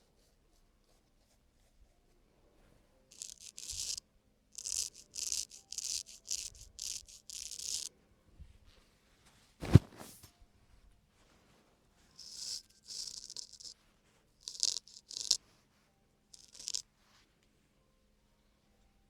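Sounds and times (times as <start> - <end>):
razor scraping skin: 3.1 - 4.0, 4.6 - 7.9, 12.2 - 13.8, 14.4 - 15.4, 16.4 - 16.8.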